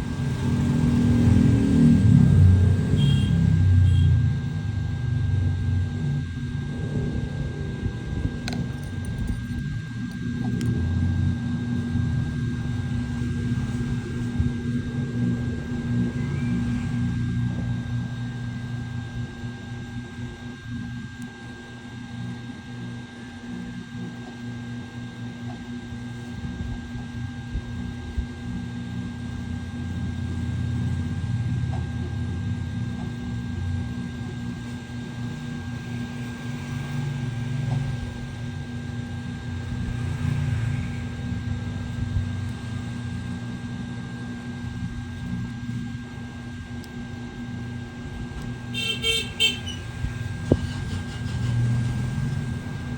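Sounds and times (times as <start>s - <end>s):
low rumble: 0.0s - 18.6s
small motor humming: 0.0s - 52.9s.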